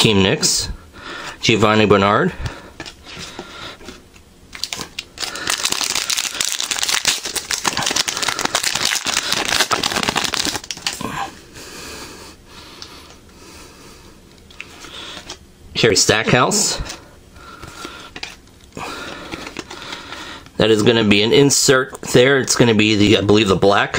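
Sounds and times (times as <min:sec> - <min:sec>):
trading cards rustling and clicking: 0:02.8 - 0:11.0, 0:17.6 - 0:18.4, 0:19.0 - 0:21.0.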